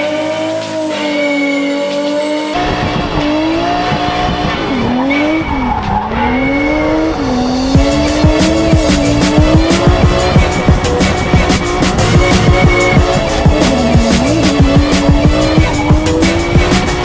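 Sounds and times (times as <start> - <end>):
car engine revving high: 0.0 - 17.0
tyres squealing: 7.9 - 17.0.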